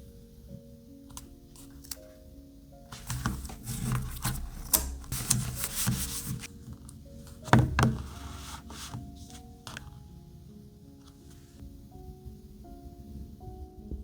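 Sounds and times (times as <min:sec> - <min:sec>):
soft background music: 0:00.0 - 0:14.0
rubbing and scraping strokes: 0:02.9 - 0:09.9.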